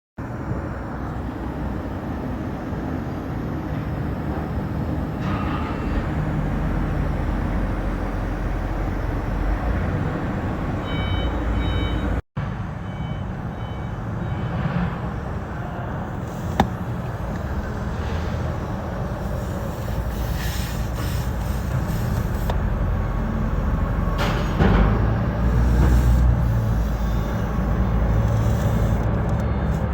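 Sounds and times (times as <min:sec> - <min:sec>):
vehicle engine and traffic: 0:00.2 - 0:29.9
short beeps: 0:10.8 - 0:12.2, 0:12.8 - 0:14.6.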